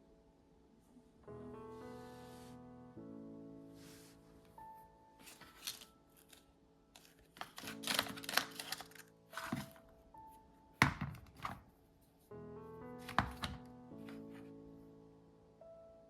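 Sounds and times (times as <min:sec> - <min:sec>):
soft background music: 0:00.0 - 0:16.0
food cutting and rustling: 0:07.0 - 0:09.8.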